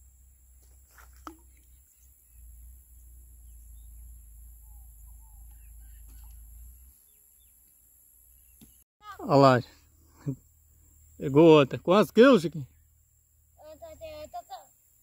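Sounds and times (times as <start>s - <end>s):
faint bird chirps: 1.4s - 8.8s.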